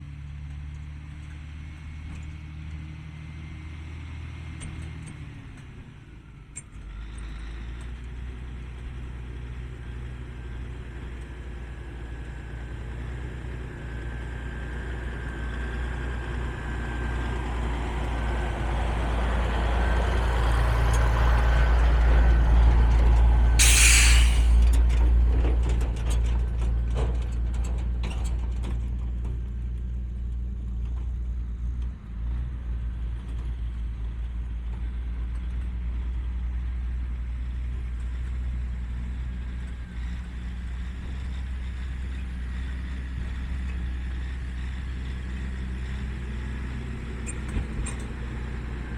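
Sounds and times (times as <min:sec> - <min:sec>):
diesel truck engine running: 0:05.5 - 0:25.4
air brake hiss: 0:23.6 - 0:24.8.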